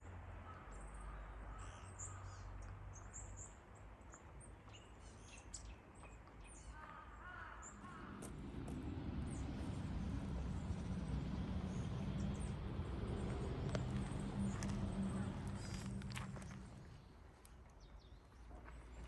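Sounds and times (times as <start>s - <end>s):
birds chirping: 4.2s - 19.0s
faint low rumble: 6.9s - 19.0s.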